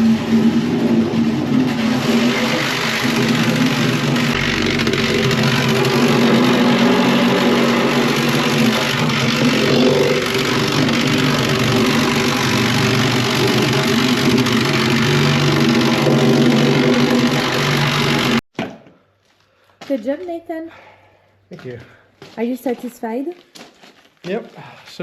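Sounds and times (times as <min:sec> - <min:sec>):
plate compactor engine running: 0:00.0 - 0:18.4.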